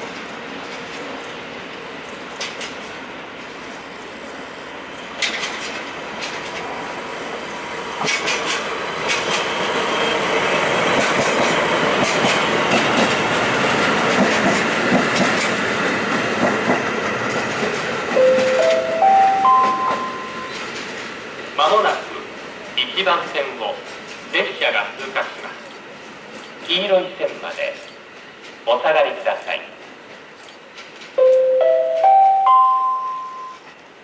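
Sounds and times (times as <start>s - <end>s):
freight train running past: 0.0s - 34.0s
wheels clicking over rail joints: 2.0s - 3.0s, 5.2s - 6.8s, 8.0s - 9.6s, 10.9s - 18.9s, 26.3s - 32.2s.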